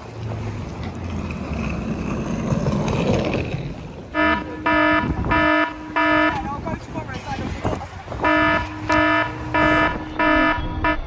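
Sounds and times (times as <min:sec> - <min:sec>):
outdoor background noise: 0:00.0 - 0:11.0
electronic warning beeps: 0:04.2 - 0:06.4, 0:08.2 - 0:11.0.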